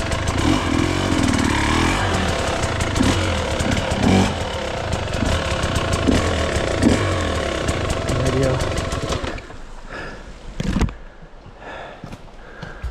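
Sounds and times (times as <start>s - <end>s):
dirt bike engine running: 0.0s - 9.5s
dirt bike throttle blips: 0.0s - 9.5s.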